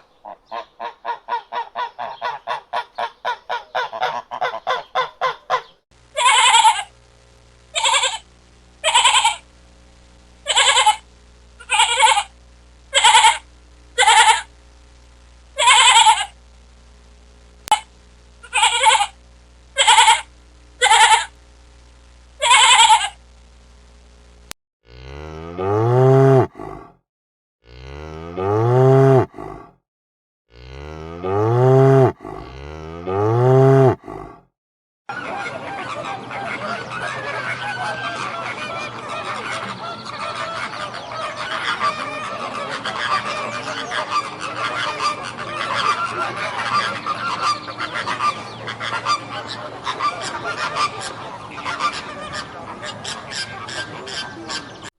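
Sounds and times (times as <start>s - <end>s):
short high animal calls: 6.2s - 6.9s, 7.8s - 8.2s, 8.8s - 9.4s, 10.5s - 11.0s, 11.6s - 12.3s, 12.9s - 13.4s, 14.0s - 14.5s, 15.6s - 16.4s, 18.4s - 19.2s, 19.8s - 21.3s, 22.4s - 23.2s
cow mooing: 24.9s - 27.0s, 27.7s - 29.7s, 30.5s - 34.4s.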